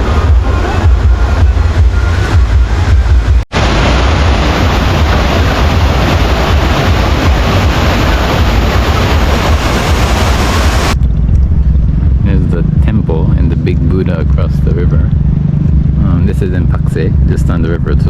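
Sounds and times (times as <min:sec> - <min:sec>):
waterfall rushing: 0:00.0 - 0:11.0
low engine hum: 0:00.0 - 0:18.0.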